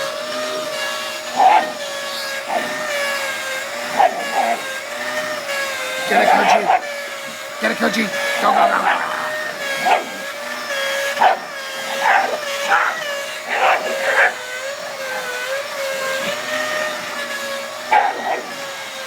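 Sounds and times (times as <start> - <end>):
vacuum cleaner whine: 0.0 - 19.0
dog barking: 1.3 - 3.1, 3.8 - 4.8, 6.0 - 6.9, 8.1 - 10.4, 11.0 - 17.1, 17.8 - 18.7.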